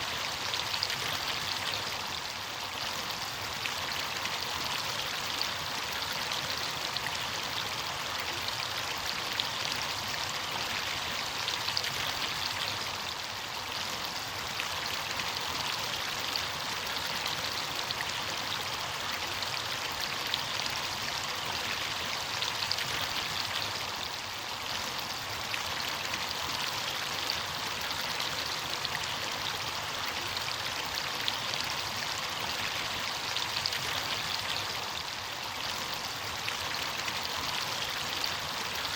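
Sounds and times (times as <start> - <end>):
stream water rushing and splashing: 0.0 - 38.9.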